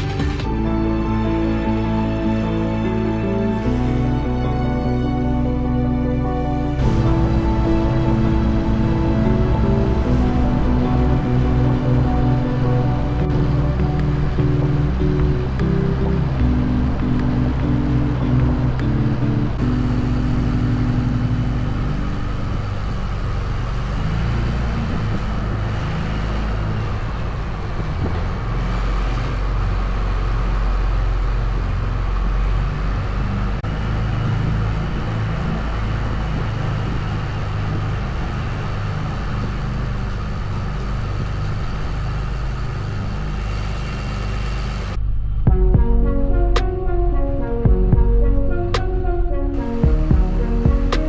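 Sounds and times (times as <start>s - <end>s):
truck engine and road rumble: 0.0s - 51.0s
faint wavering whine: 6.5s - 28.2s.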